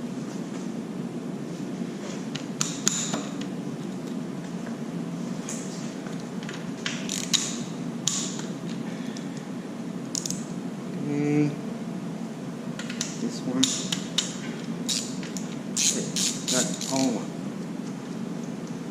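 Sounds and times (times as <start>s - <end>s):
steady low hum: 0.0s - 18.9s
hand tools clicking on metal: 7.1s - 8.4s, 14.9s - 17.2s.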